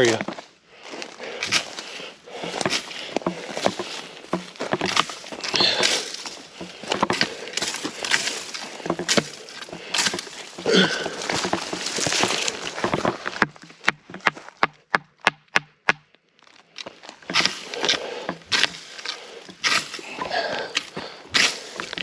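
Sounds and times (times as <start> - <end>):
footsteps through dry brush: 0.0 - 14.6, 16.4 - 22.0
twigs crackling and snapping: 0.0 - 14.8, 16.4 - 22.0.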